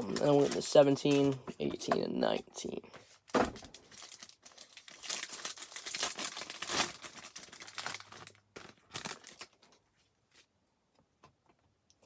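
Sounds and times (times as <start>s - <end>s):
plastic wrapping crinkling and tearing: 0.0s - 1.4s, 3.1s - 9.8s.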